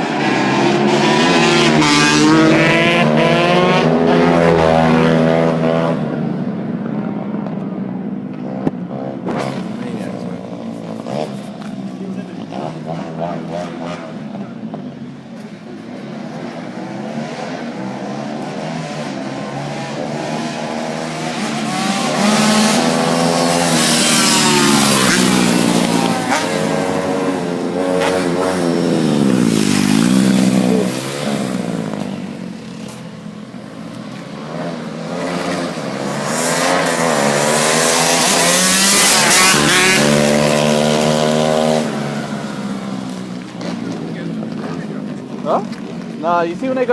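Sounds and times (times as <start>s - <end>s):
dirt bike engines revving: 0.0s - 46.9s.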